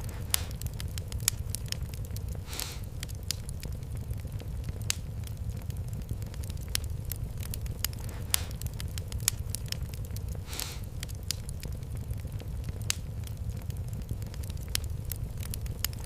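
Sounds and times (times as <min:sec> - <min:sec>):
fire crackling and popping: 0:00.0 - 0:16.0
low rumble: 0:00.0 - 0:16.0
short hiss: 0:02.4 - 0:02.9, 0:10.5 - 0:10.9.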